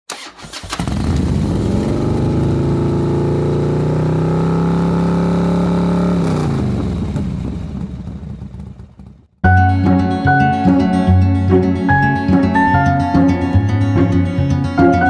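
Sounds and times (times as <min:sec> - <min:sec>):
motorbike engine revving: 0:00.1 - 0:09.4.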